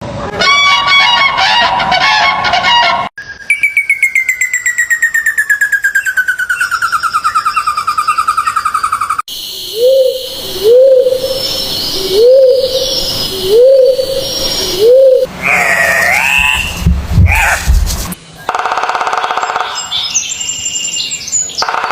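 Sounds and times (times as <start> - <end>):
chattering birdsong: 3.6 - 18.5
low bird hoots: 9.7 - 17.6.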